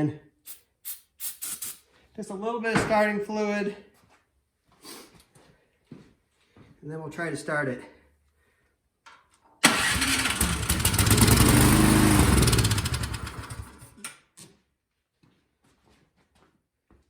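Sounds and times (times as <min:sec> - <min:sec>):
snowblower engine starting and dying: 0:09.6 - 0:14.0.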